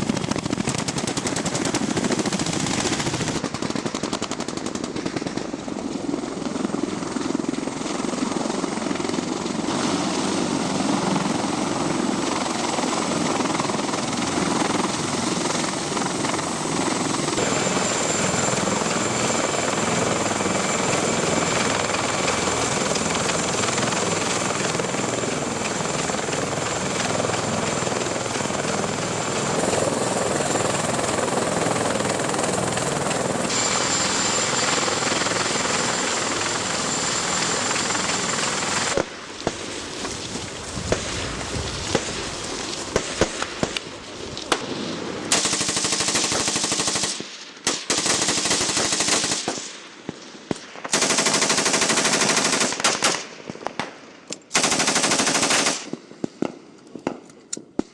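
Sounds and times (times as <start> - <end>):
helicopter rotor and engine noise: 0.0 - 57.9
high turbine whine: 8.0 - 43.0.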